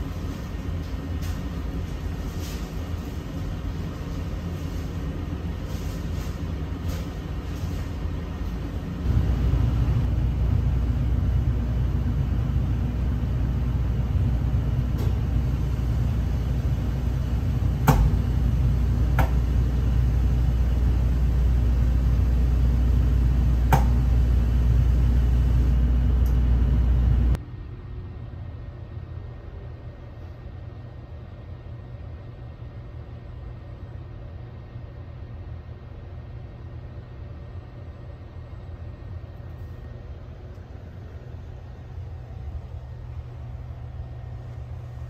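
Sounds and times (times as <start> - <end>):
train rumbling inside carriage: 0.0 - 27.4, 38.4 - 45.0.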